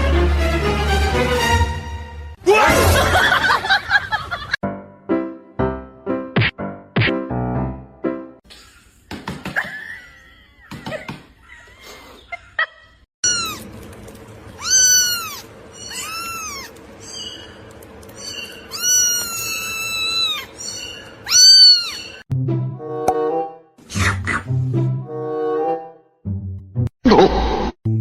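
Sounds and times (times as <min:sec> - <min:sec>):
music: 0:00.0 - 0:03.3, 0:04.6 - 0:08.4, 0:22.3 - 0:26.9
cat meowing: 0:13.2 - 0:13.6, 0:14.6 - 0:16.8, 0:18.7 - 0:22.2.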